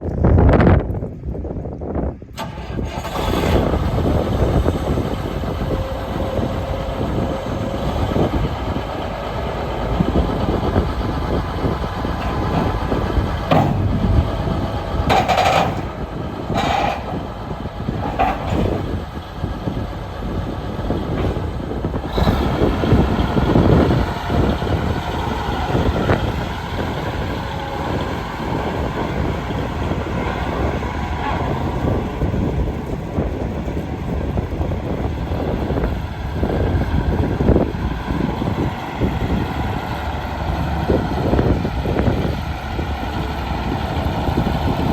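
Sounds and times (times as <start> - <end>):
tractor diesel engine running: 0.1 - 44.9
sharp clanking: 12.0 - 19.0.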